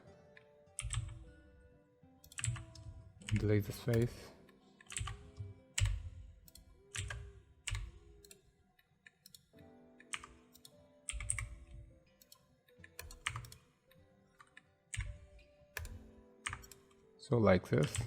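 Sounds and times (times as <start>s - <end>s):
keyboard keystrokes: 0.8s - 1.4s, 2.2s - 8.4s, 9.1s - 13.7s, 14.4s - 17.0s, 17.8s - 18.0s.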